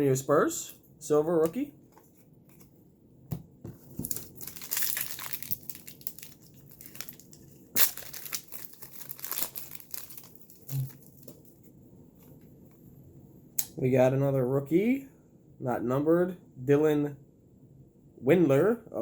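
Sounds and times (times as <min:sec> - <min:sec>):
card wrapper crinkling: 0:03.9 - 0:11.6.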